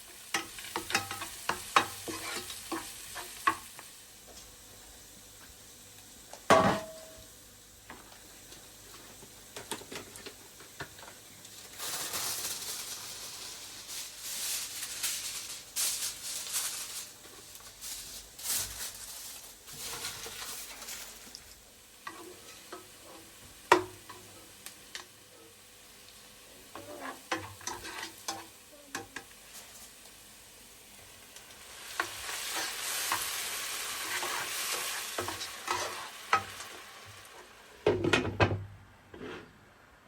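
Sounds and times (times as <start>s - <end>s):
food sizzling: 0.0s - 38.0s.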